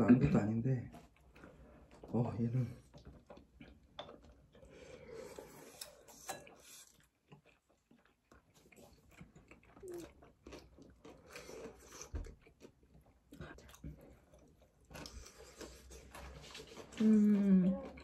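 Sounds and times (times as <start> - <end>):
people chewing: 0.0 - 18.0.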